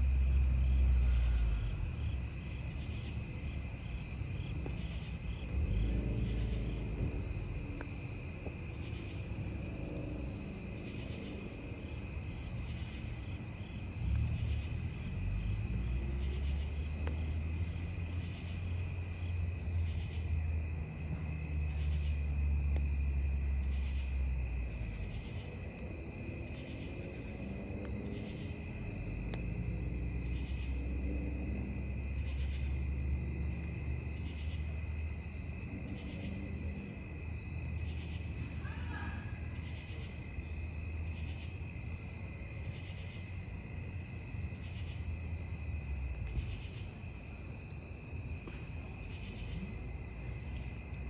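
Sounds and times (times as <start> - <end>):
low rumble: 0.0 - 12.5
campfire wood crackling: 0.0 - 38.4, 40.6 - 51.0
crickets chirping: 0.0 - 51.0.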